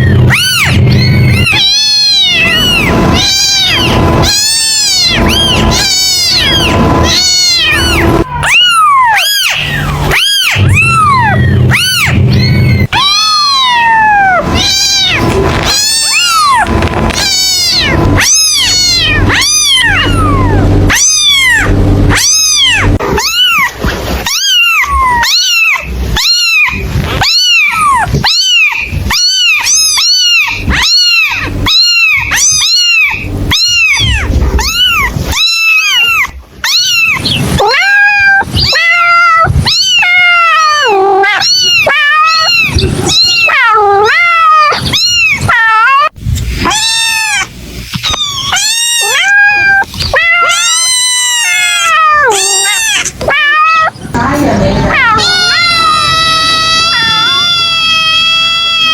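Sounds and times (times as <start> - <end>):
kitten meowing: 0.0 - 58.9.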